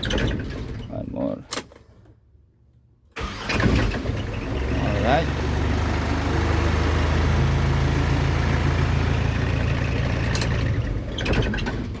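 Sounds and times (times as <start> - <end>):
truck engine idling: 3.2 - 11.2.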